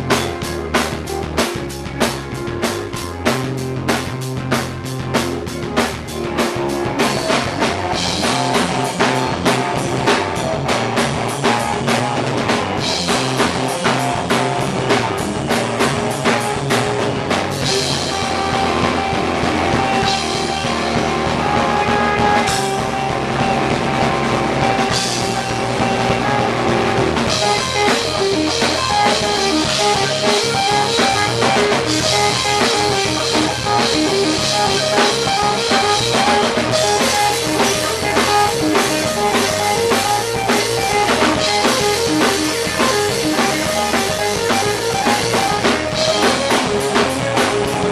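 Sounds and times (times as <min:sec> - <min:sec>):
held guitar notes: 0:00.0 - 0:47.9
rock band playing live: 0:00.0 - 0:47.9
fast drum hits: 0:05.2 - 0:47.9.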